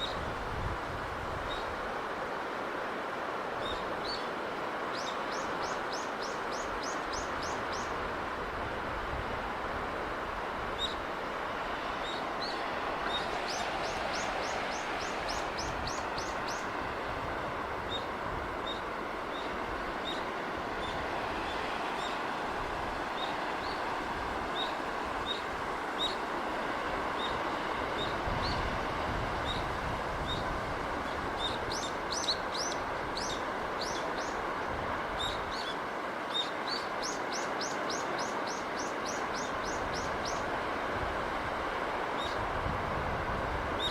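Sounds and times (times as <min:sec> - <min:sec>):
sea waves: 0:00.0 - 0:43.9
small birds chirping: 0:31.4 - 0:34.4, 0:35.2 - 0:40.4.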